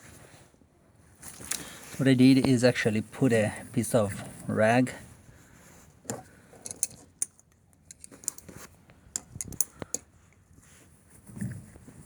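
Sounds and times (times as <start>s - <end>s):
small metallic clicks: 6.0s - 10.4s.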